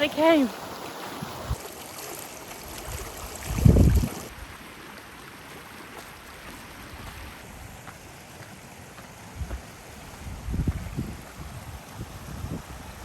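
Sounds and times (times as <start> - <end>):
stream rushing: 0.0 - 13.0
wind buffeting microphone: 2.8 - 4.6, 9.4 - 13.0.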